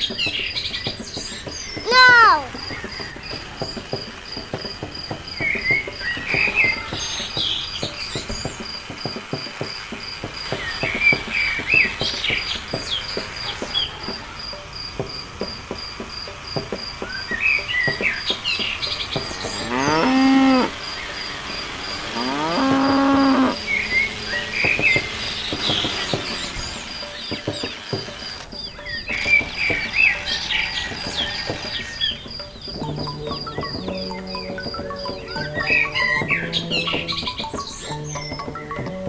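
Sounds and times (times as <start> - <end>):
pulsing insect chirp: 2.5 - 39.0
bird chirps: 17.0 - 39.0
cow mooing: 19.4 - 20.8, 22.1 - 23.7.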